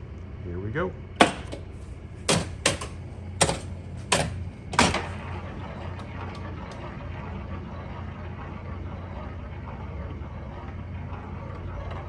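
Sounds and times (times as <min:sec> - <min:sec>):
low mechanical rumble with ticks: 0:00.0 - 0:12.0.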